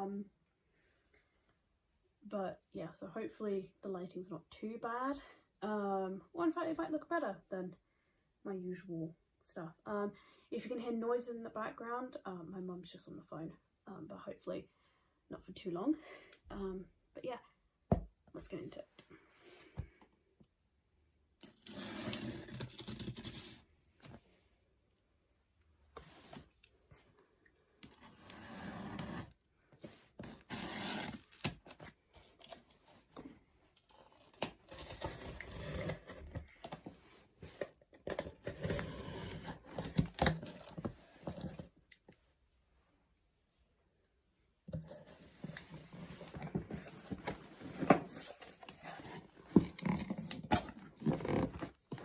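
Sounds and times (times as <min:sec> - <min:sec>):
packaging being torn and scraped: 0:21.4 - 0:23.6, 0:30.2 - 0:32.7, 0:33.9 - 0:36.5, 0:46.1 - 0:52.0.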